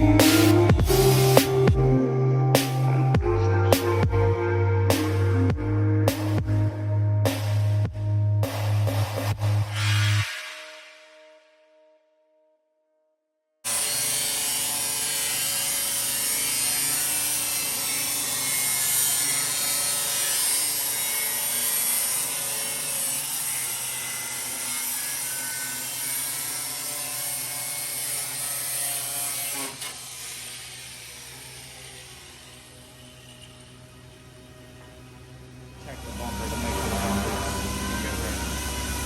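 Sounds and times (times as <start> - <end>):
power tool whirring: 0.0 - 2.0, 13.7 - 39.0.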